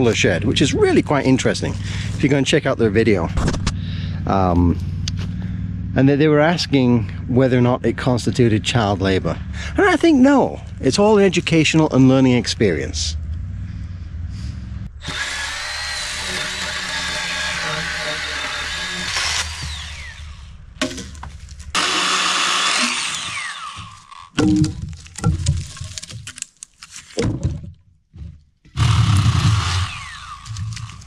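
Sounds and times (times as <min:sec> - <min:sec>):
chainsaw cutting: 0:00.0 - 0:02.4, 0:15.0 - 0:24.4, 0:28.8 - 0:31.0
sharp knocks and cracks: 0:20.8 - 0:21.8, 0:23.3 - 0:29.7.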